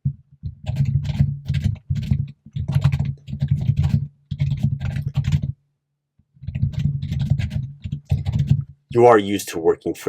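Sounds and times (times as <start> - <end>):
fast typing on keyboard: 0.4 - 5.6, 6.4 - 8.8.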